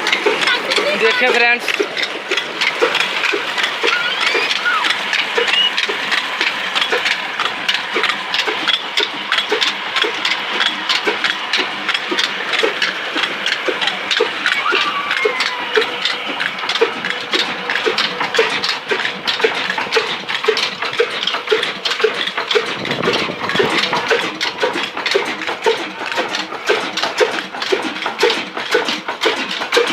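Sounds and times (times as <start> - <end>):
diesel engine clattering: 0.0 - 29.9.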